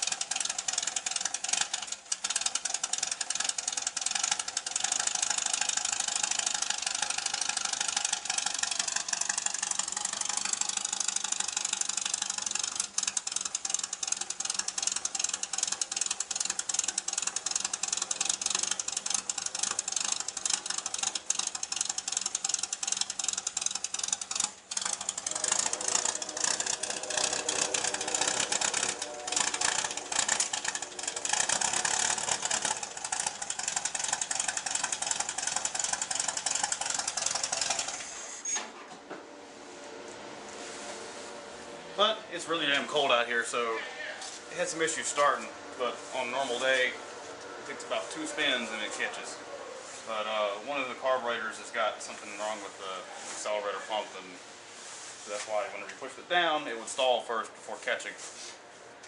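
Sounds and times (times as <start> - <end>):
car engine running: 0.0 - 38.4, 39.1 - 52.8.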